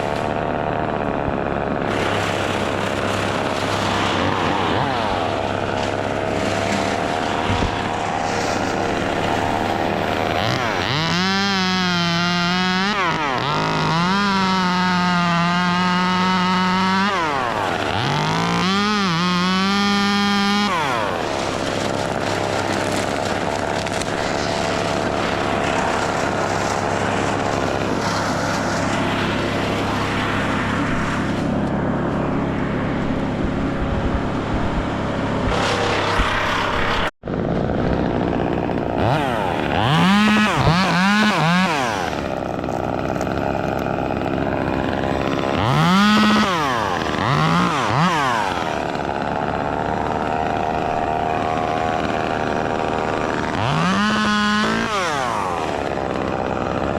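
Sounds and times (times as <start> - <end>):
low engine drone: 0.0 - 11.0, 21.0 - 40.0
chainsaw revving: 0.0 - 56.9.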